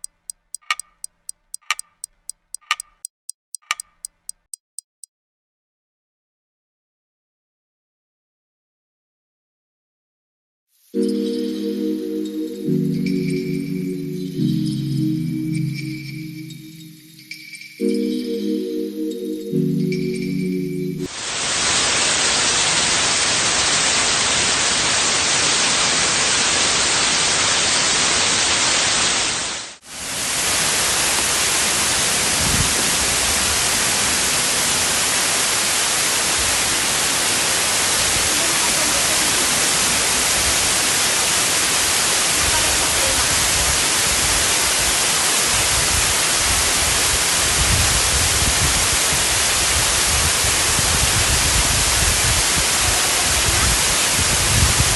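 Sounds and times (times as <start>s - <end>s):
waterfall rushing: 21.1s - 54.9s.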